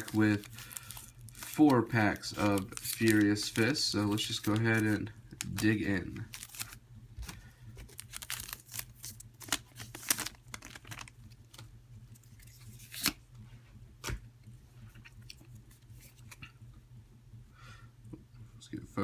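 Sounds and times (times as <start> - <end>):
foil pack tearing and crinkling: 0.0 - 11.6.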